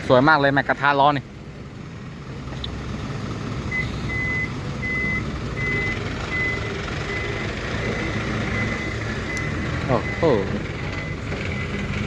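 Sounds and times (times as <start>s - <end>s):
diesel engine rumble: 0.0s - 12.0s
truck reverse alarm beeping: 3.6s - 12.0s.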